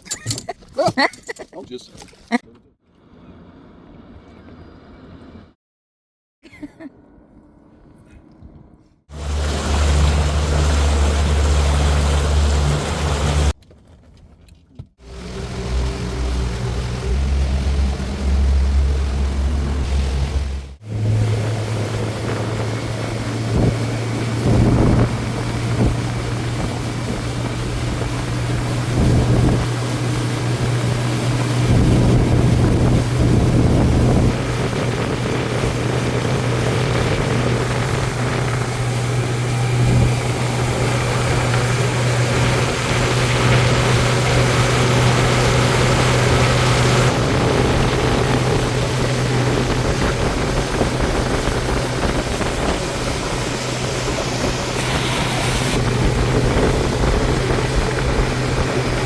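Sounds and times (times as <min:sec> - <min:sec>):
motorboat engine humming: 0:07.1 - 0:13.6, 0:14.8 - 0:59.0
water rushing: 0:09.1 - 0:13.6, 0:15.0 - 0:59.0
wind noise: 0:21.3 - 0:59.0.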